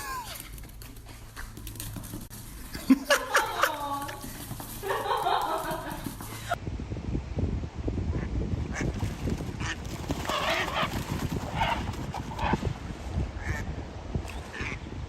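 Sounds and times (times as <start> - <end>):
steady low rumble: 5.7 - 9.8.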